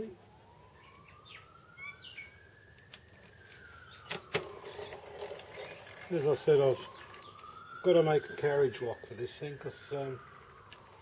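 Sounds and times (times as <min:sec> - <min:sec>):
faint rising and falling tone: 0:00.0 - 0:11.0.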